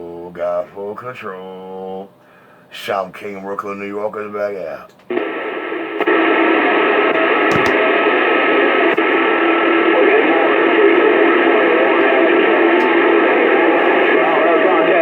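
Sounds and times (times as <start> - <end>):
faint humming tones: 0.0 - 15.0
radio static hiss: 5.1 - 15.0.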